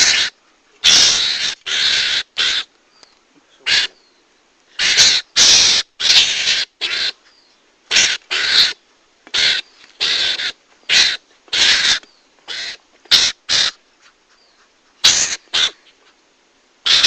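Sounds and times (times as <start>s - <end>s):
harsh raspy mongoose calls: 0.0s - 17.0s.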